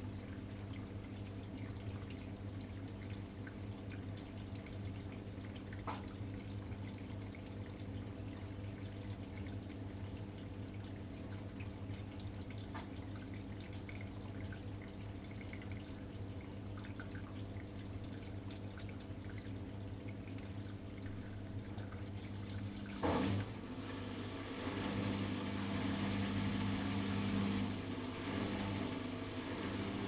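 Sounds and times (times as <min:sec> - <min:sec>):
washing machine hum: 0:00.0 - 0:30.0
water running into machine: 0:00.0 - 0:30.0
loud clunk: 0:23.0 - 0:23.6.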